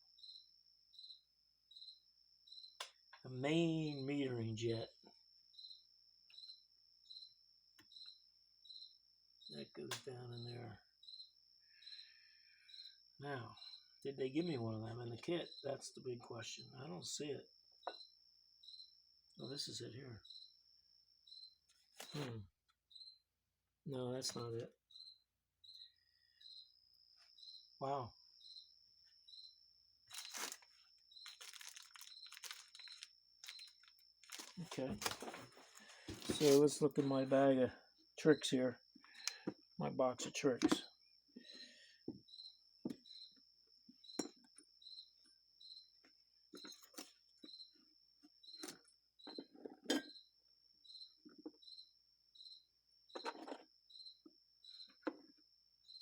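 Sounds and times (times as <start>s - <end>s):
crickets chirping: 0.0s - 56.0s
packaging crinkling and rustling: 30.1s - 36.6s.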